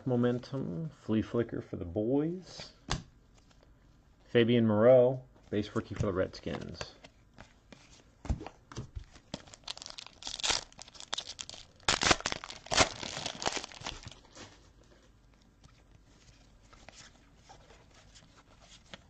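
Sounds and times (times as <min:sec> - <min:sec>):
wrappers tearing and crinkling: 0:09.3 - 0:14.5.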